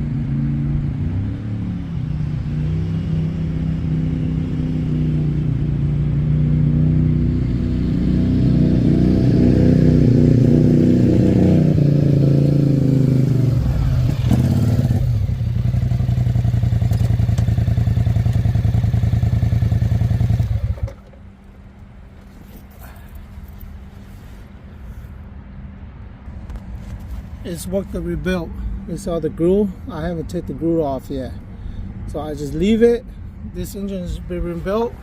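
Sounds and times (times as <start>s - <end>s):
atv engine revving and idling: 0.0s - 25.0s.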